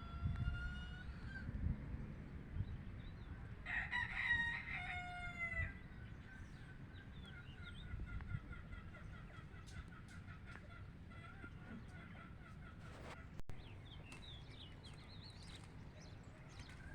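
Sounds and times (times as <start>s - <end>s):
rooster crowing: 0.0s - 1.4s, 3.6s - 5.8s.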